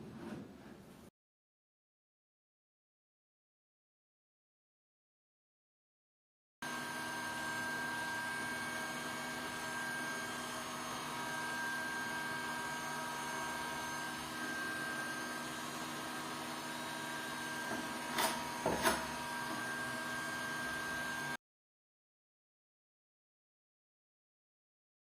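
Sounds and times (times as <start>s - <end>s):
small motor whining: 6.7s - 21.4s.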